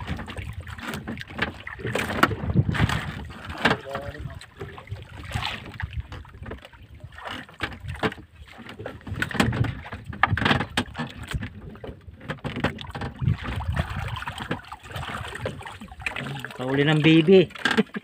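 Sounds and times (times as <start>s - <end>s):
splashes and knocks: 0.0s - 18.0s
water slapping against boat hull: 0.0s - 18.0s.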